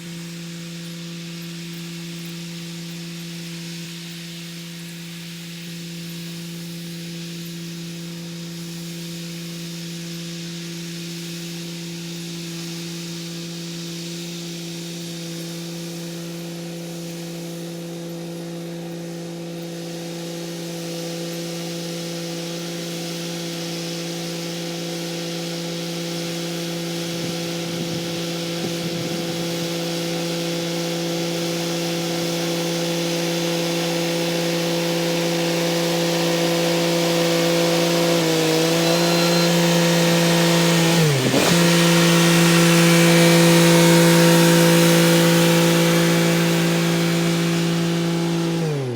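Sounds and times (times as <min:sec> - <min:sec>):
tractor diesel engine running: 0:26.8 - 0:48.9.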